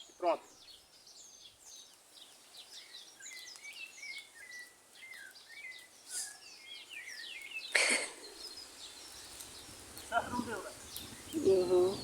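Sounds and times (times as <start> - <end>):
birds chirping and whistling: 0.0 - 12.0
brief hiss: 6.1 - 6.5.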